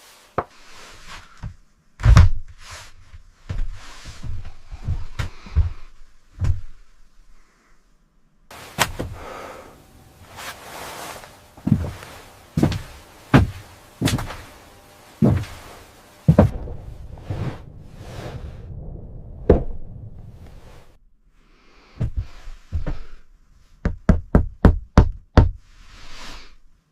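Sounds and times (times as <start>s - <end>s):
steady background hiss: 0.0s - 19.0s
heavy knocks: 12.6s - 14.6s, 16.3s - 17.7s.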